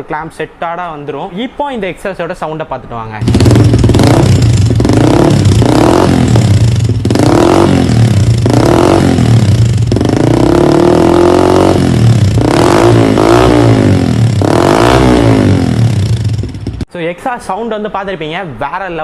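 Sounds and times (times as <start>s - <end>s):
motorcycle engine revving: 3.2s - 16.9s.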